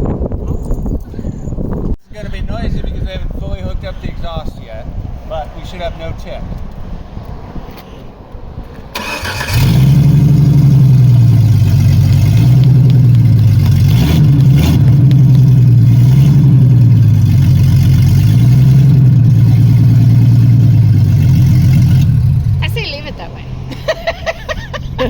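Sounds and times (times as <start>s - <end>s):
loud car engine running: 9.0s - 25.0s.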